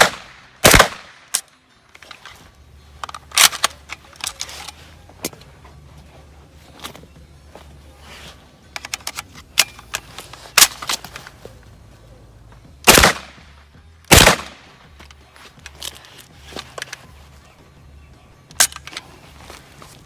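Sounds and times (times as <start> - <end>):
pistol shots: 0.0 - 1.4, 12.9 - 13.5, 14.1 - 14.7.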